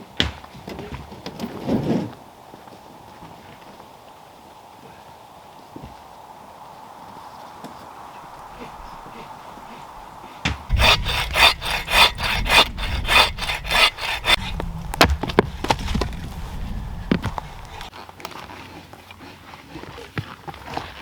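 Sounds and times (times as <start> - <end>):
wood knocks and cracks: 10.5 - 17.9
hand saw cutting wood: 10.7 - 17.9.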